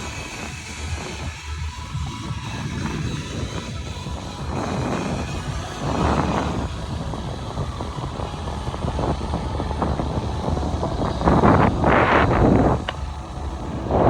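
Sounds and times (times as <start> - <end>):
steady low rumble: 0.0 - 14.0
wind buffeting microphone: 0.0 - 14.0.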